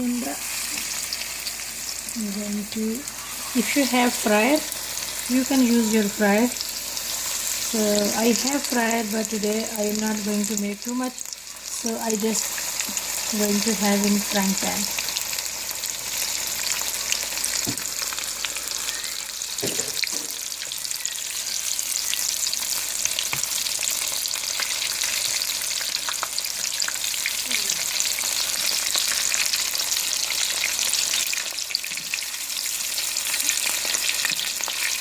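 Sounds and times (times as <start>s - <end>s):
chicken frying in oil: 0.0s - 35.0s.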